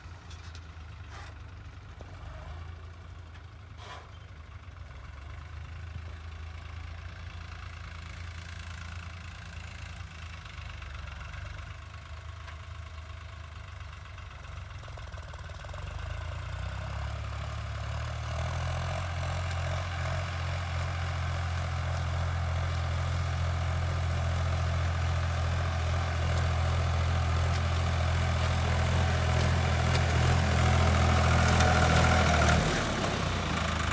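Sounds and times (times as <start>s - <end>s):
tractor diesel engine running: 17.2s - 33.9s.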